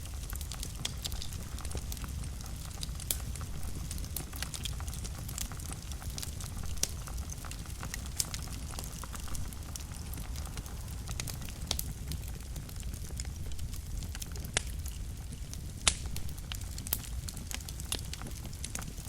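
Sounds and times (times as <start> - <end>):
fire crackles and pops: 0.0 - 19.0
low rumble of flames: 0.0 - 19.0.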